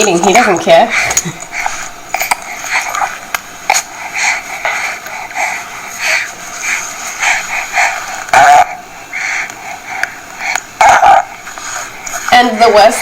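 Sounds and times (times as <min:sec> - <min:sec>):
baby sounds through small speaker: 0:07.8 - 0:08.8, 0:10.8 - 0:11.5.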